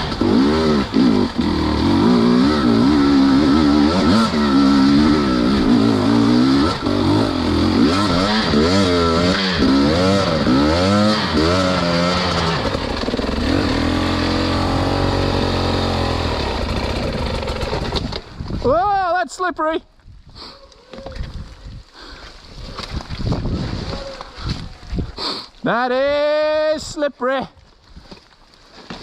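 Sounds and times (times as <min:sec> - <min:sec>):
dirt bike engine revving: 0:00.0 - 0:18.2.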